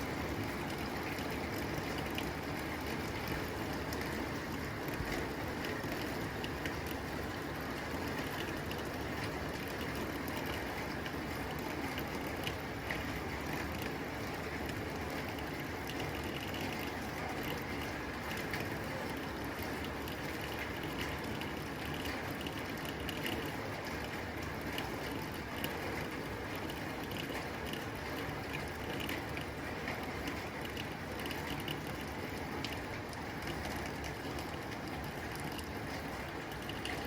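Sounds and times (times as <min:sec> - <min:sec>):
rain on a tin roof: 0:00.0 - 0:37.0.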